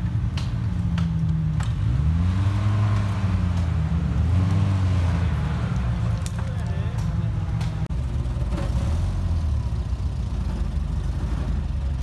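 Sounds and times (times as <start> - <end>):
off-road engine revving: 0.3 - 12.0.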